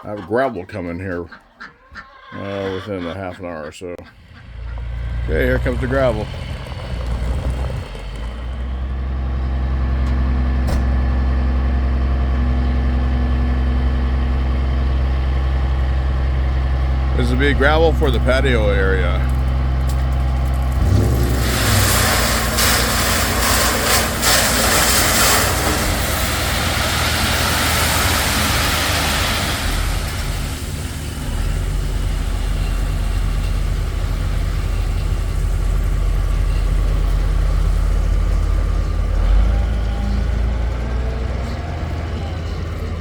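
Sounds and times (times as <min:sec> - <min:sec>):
diesel truck engine running: 0:04.0 - 0:43.0
gravel pouring with rushing rattle: 0:20.0 - 0:39.3.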